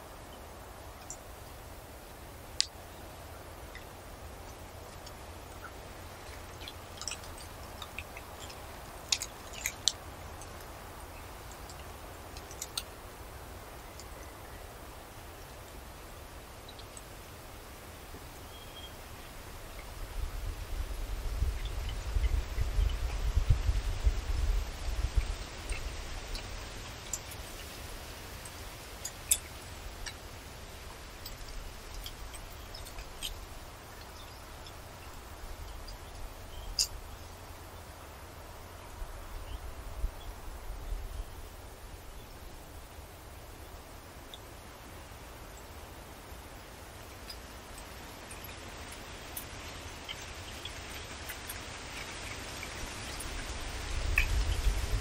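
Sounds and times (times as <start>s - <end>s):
birds chip calls: 25.1s - 38.0s, 47.0s - 54.9s
birds chirping: 31.2s - 37.9s.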